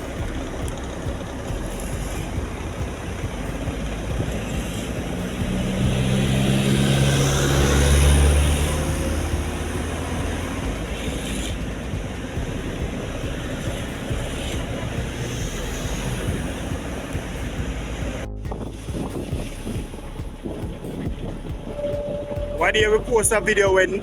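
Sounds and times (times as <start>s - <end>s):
deep engine hum: 0.0s - 24.0s
road and traffic noise: 0.0s - 24.0s.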